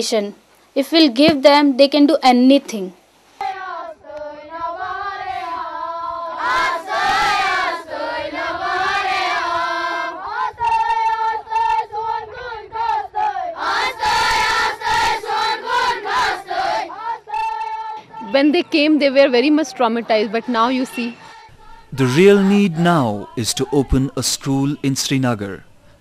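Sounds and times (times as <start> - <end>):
children singing: 3.4 - 18.3, 20.4 - 24.8.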